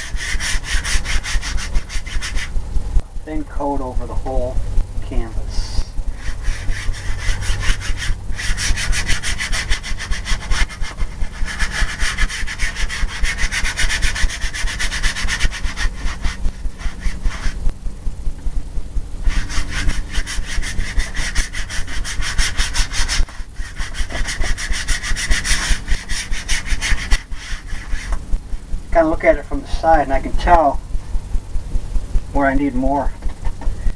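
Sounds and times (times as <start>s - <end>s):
paint brush scrubbing canvas: 0.0s - 2.5s, 5.5s - 17.6s, 19.2s - 28.2s.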